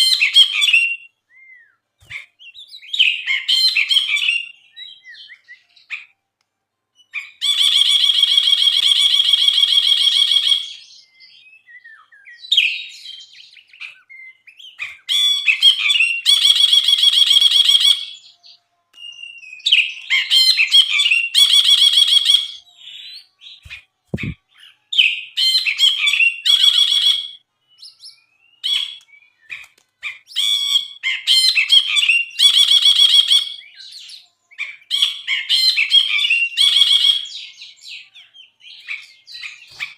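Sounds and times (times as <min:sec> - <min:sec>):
bulbul singing trills: 0:07.0 - 0:29.6
soft low thump: 0:24.2 - 0:24.4.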